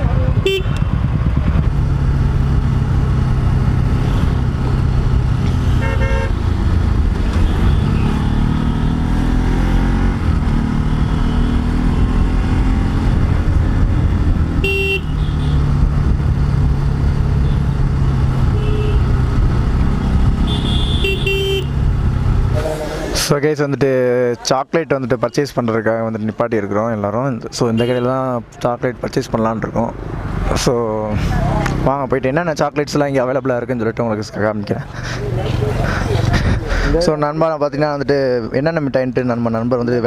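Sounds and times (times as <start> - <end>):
motorcycle engine running: 0.0 - 22.8
horn toots: 0.4 - 0.9, 5.6 - 6.5, 14.6 - 15.7, 18.5 - 19.2, 20.1 - 21.8.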